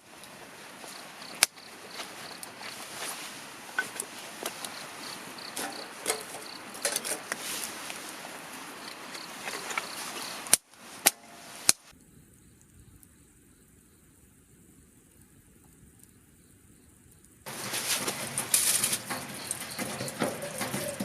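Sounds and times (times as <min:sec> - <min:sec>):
insect chirping: 0:00.0 - 0:10.5, 0:11.1 - 0:21.0
steady hiss: 0:00.0 - 0:21.0.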